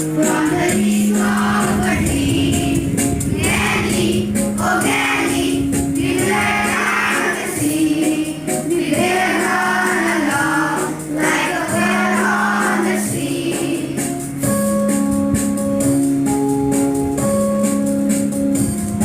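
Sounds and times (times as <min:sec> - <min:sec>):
voices singing: 0:00.1 - 0:14.2.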